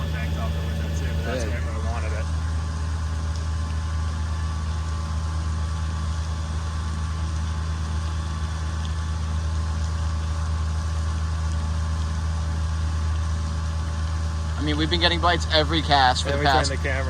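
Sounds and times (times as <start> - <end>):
faint steady tones: 0.0 - 5.2
low mechanical hum: 0.0 - 17.0.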